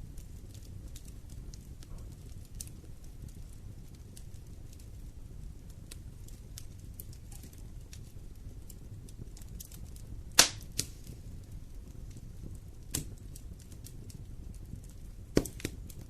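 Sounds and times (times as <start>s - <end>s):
wood fire rumbling and crackling: 0.0s - 16.0s
sharp loud fire pops: 10.3s - 11.0s, 15.3s - 15.8s.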